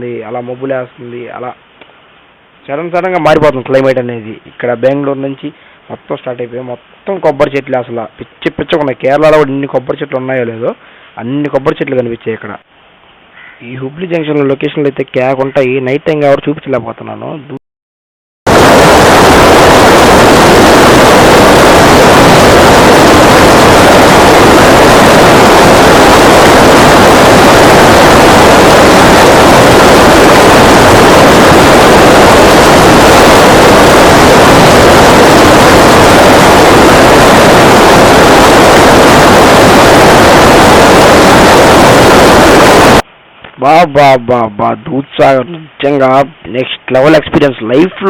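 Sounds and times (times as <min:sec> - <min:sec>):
loud rushing roar: 0:18.5 - 0:43.0.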